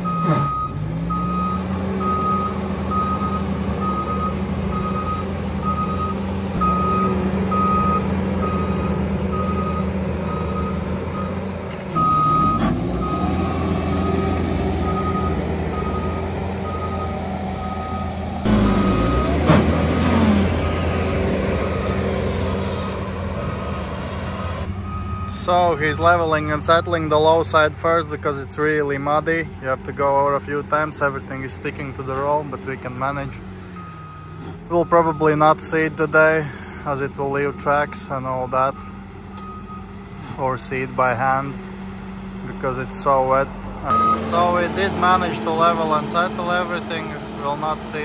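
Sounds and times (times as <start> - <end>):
reversing alarm beeping: 0.0 - 19.5, 24.4 - 25.8, 33.7 - 35.5, 37.5 - 39.9, 43.9 - 44.6
diesel engine under load: 0.0 - 48.0.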